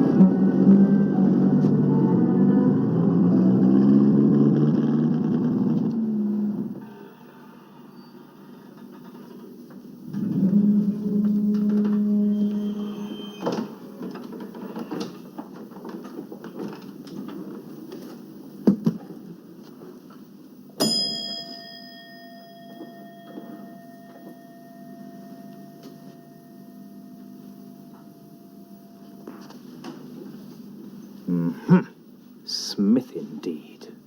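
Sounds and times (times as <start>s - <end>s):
low background hum: 5.2s - 34.0s
metallic strike ringing: 20.8s - 27.4s.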